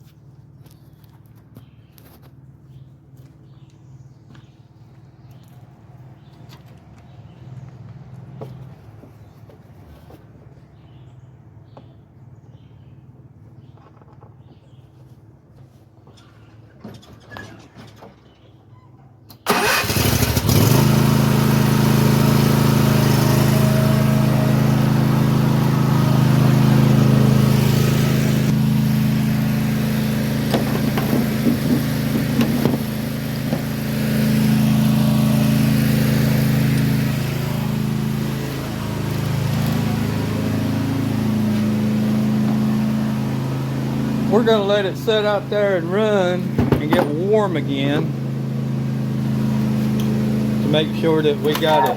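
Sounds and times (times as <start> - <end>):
mower engine idling: 19.4 - 51.9.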